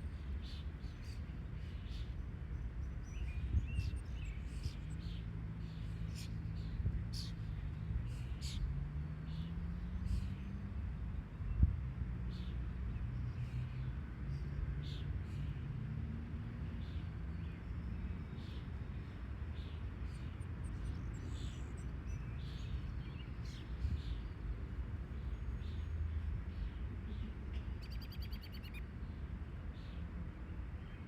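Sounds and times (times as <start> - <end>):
bird chirps: 27.8 - 28.8.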